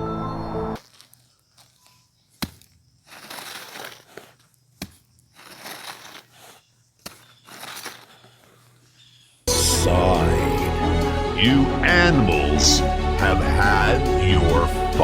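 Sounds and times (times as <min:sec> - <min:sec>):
crinkling crunching ice: 0:00.8 - 0:09.2.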